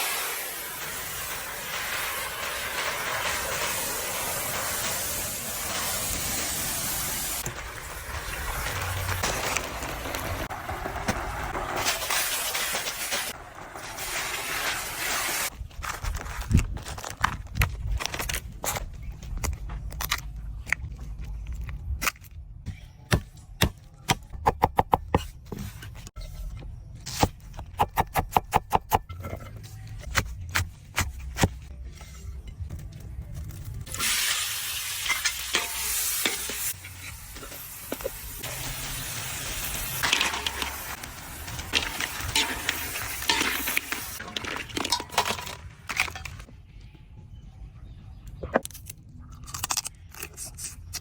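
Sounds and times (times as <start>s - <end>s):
crabs sizzling in hot oil: 0.0s - 10.5s, 11.7s - 15.5s, 33.9s - 45.4s
sharp crackles and crunches: 1.3s - 22.6s, 48.6s - 51.0s.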